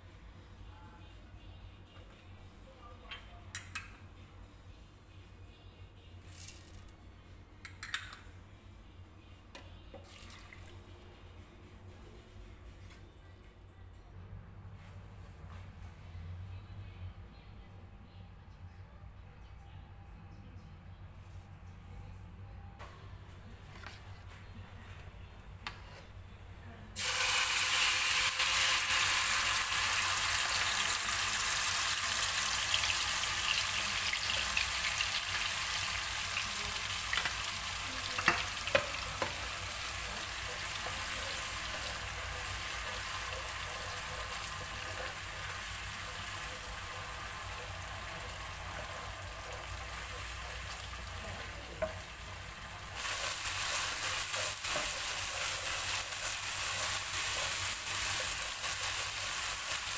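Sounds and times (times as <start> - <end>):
paste sizzling in hot oil: 27.0 - 51.1, 52.1 - 59.9.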